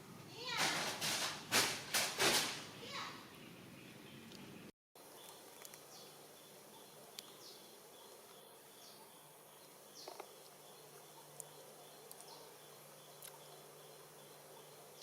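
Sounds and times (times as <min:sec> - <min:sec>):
high insect drone: 0:05.0 - 0:15.0.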